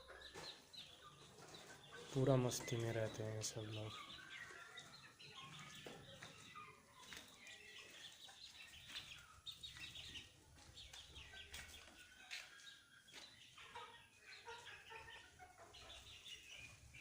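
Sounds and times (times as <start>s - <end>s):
chicks peeping: 0.0s - 17.0s
hens clucking softly: 0.0s - 17.0s.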